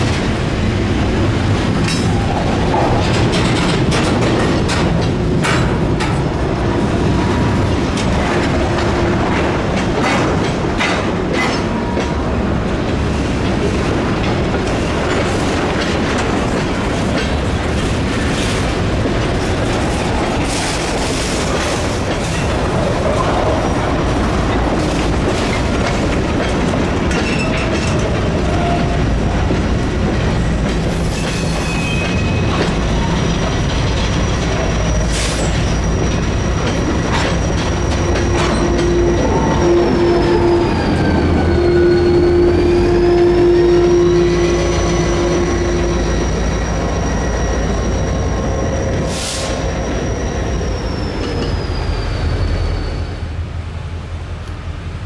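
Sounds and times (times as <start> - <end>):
wheels clacking over rail joints: 0.0 - 51.8
freight car wheels rumbling on rails: 0.0 - 52.9
faint wheel squeal: 34.3 - 53.3.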